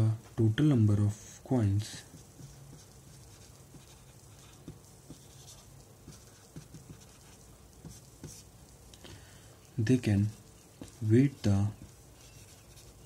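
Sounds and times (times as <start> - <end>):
low steady hum: 0.0 - 13.0
pen writing: 2.1 - 8.5, 11.8 - 13.0.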